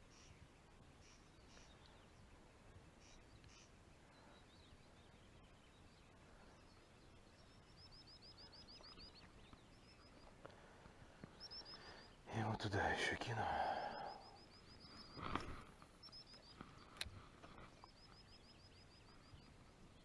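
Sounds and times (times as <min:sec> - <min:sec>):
faint songbird calls: 0:00.0 - 0:20.0.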